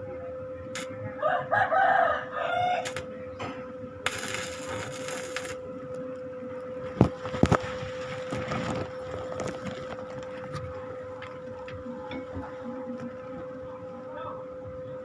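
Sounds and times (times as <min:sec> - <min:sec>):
motor hum: 0:00.0 - 0:15.0
rooster crowing: 0:01.2 - 0:03.0.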